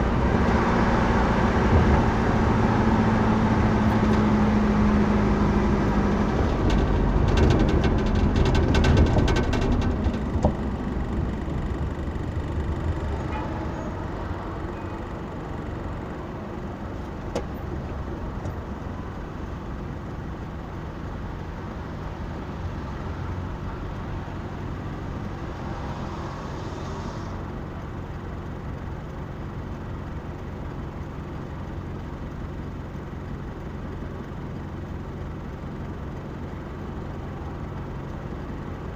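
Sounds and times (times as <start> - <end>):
vehicle engine rumble: 0.0 - 38.9
clicks and rattles: 6.3 - 13.5.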